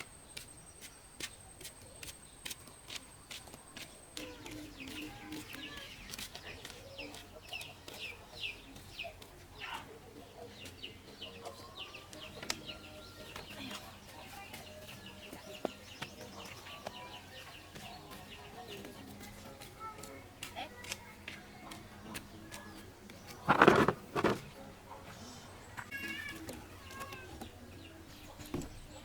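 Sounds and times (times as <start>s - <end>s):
chickens clucking: 22.0s - 29.0s.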